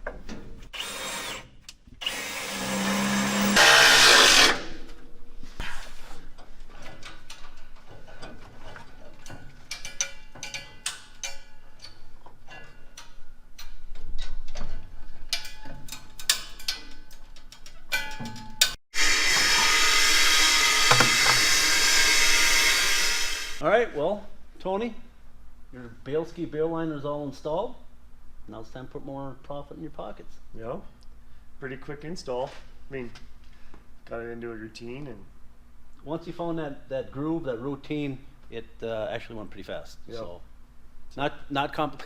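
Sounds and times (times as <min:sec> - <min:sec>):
power drill drilling into steel: 0:00.8 - 0:04.6, 0:19.0 - 0:23.6
clicks and clanks of tools: 0:06.8 - 0:18.8.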